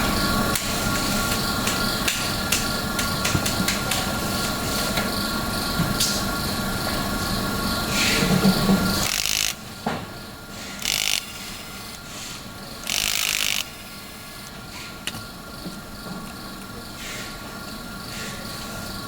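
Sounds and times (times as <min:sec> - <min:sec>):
ratchet-like scraping: 0:08.9 - 0:09.7, 0:10.6 - 0:14.6
sharp clicks: 0:09.0 - 0:09.6, 0:10.8 - 0:12.0, 0:12.8 - 0:13.8.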